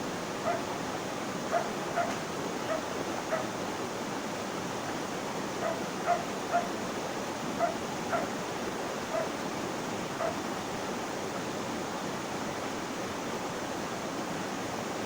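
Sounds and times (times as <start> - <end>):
flowing water rushing: 0.0 - 15.0
dog barking: 0.4 - 0.7, 1.5 - 3.5, 5.6 - 6.8, 7.6 - 8.3, 9.1 - 9.3, 10.2 - 10.4.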